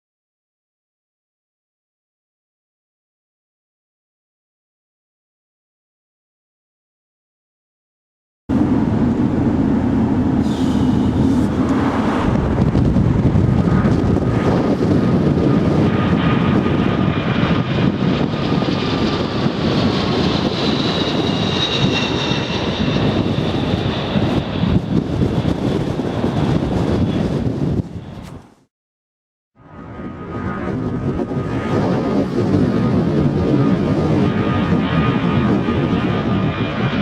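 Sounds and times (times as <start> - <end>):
high engine whines: 8.5 - 26.2
jet engines running loud: 8.5 - 28.6, 29.6 - 37.0.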